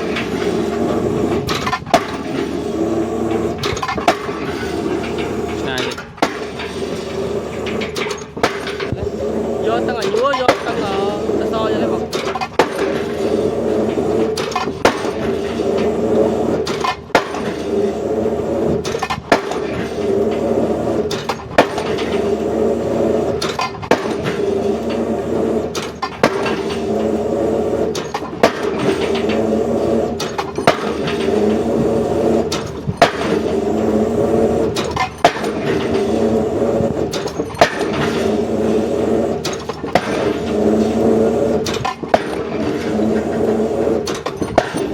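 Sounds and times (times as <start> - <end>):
diesel engine humming: 0.0 - 44.9
drop hammer striking concrete: 3.6 - 6.7, 12.1 - 13.4, 14.2 - 15.4, 16.6 - 17.6, 18.8 - 19.9, 23.4 - 25.0, 28.0 - 29.6, 30.2 - 31.6, 32.5 - 33.5, 34.8 - 36.1, 37.1 - 38.4, 39.4 - 44.9.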